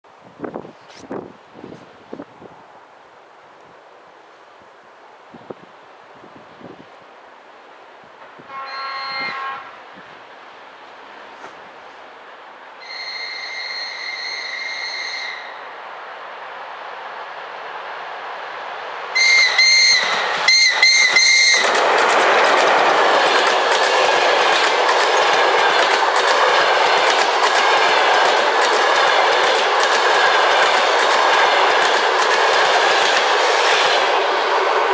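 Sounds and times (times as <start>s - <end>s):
train coaches rumbling past: 0.1s - 34.9s
locomotive whistle toots: 8.5s - 9.8s, 12.8s - 15.7s, 19.2s - 21.8s
wheels clacking over rail joints: 19.2s - 34.9s.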